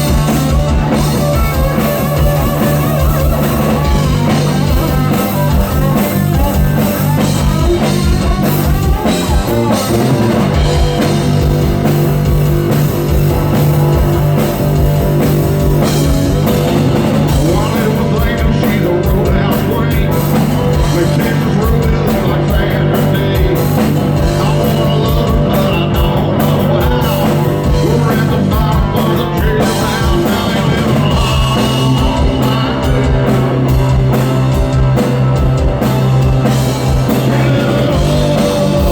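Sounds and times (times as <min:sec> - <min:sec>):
drum kit: 0:00.0 - 0:38.9
electric guitar: 0:00.0 - 0:38.9
person singing: 0:17.2 - 0:33.9, 0:37.0 - 0:38.9.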